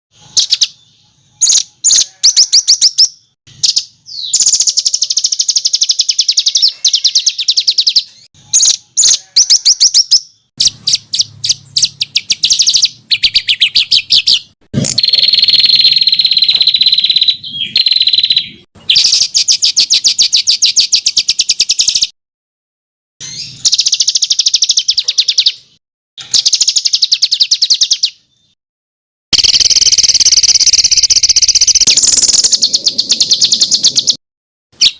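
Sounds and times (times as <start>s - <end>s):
songbird singing rapid trills: 0.2s - 22.1s, 23.2s - 25.6s, 26.2s - 28.6s, 29.4s - 34.2s.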